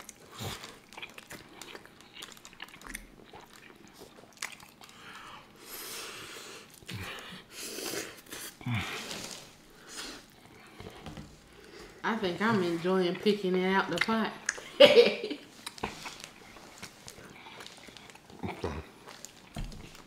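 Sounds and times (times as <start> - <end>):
people chewing food: 0.0 - 14.8, 15.4 - 20.0
lip smacks: 13.9 - 14.7, 15.6 - 20.0.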